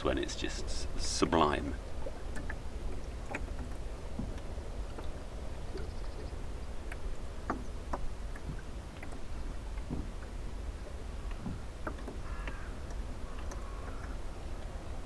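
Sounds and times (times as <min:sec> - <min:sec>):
water lapping against hull: 0:00.0 - 0:15.0
light clicks and knocks: 0:02.0 - 0:14.8.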